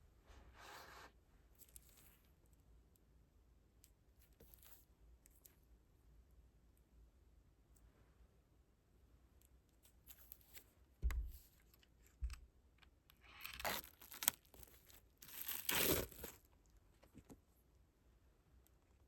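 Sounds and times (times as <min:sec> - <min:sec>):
packaging tearing: 0:13.3 - 0:16.4.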